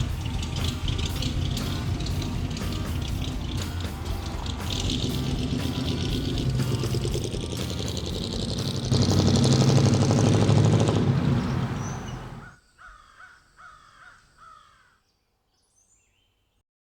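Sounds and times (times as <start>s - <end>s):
crow cawing: 11.8s - 15.0s.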